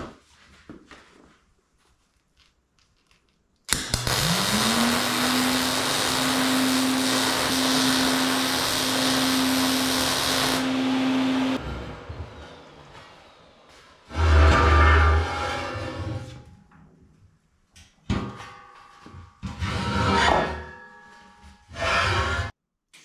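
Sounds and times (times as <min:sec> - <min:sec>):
angle grinder motor: 0:03.7 - 0:12.2
grinding on steel: 0:03.8 - 0:11.7, 0:21.7 - 0:22.5.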